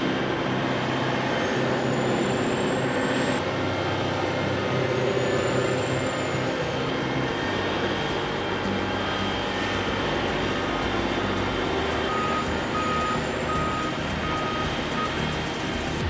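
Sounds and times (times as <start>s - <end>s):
diesel engine under load: 0.3s - 16.0s
reversing alarm beeping: 4.9s - 16.0s.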